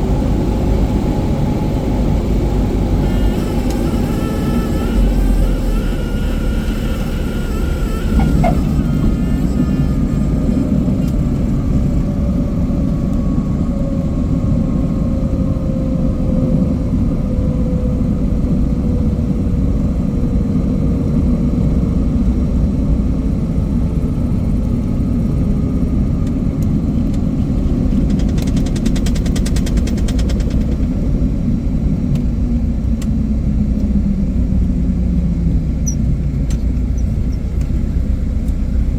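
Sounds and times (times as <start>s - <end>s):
propeller plane engine drone: 0.0s - 38.9s
rapid high clicking: 27.9s - 30.9s.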